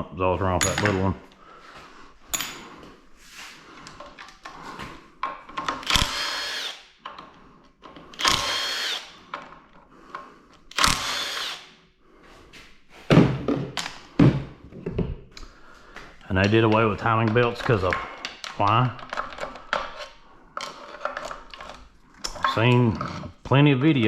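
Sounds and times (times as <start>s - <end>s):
clicks of tools and parts: 3.8s - 11.6s, 15.3s - 23.4s
power tool bursts: 5.8s - 6.8s, 8.2s - 9.2s, 10.7s - 11.7s.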